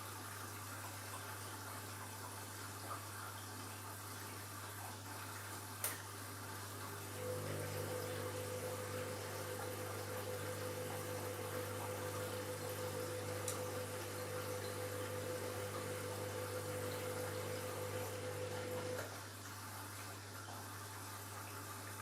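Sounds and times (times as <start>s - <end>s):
washing machine whine: 6.2s - 22.0s.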